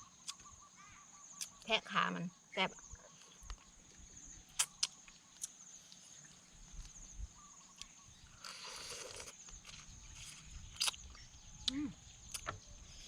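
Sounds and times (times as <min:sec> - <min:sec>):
crab shell cracking and crunching: 0:07.8 - 0:11.2.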